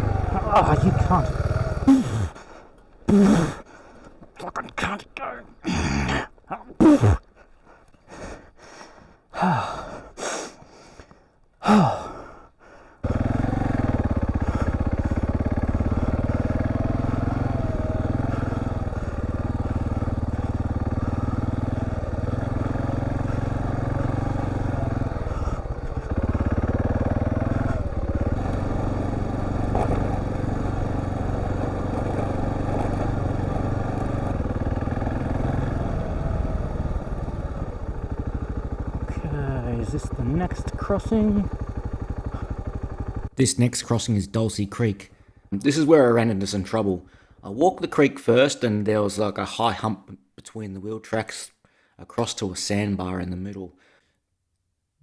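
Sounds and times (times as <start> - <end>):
motorcycle engine running: 0.0 - 2.4, 13.0 - 47.7
man gasping and breathing: 1.2 - 4.2, 5.6 - 13.0, 14.3 - 15.4, 18.2 - 22.1, 25.2 - 26.4, 47.0 - 47.4, 53.8 - 54.2.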